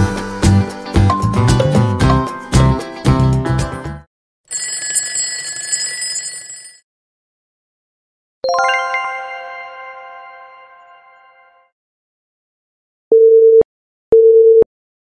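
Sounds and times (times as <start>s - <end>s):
quiz background music: 0.0s - 4.0s
ringing bell sound effect: 8.5s - 11.7s.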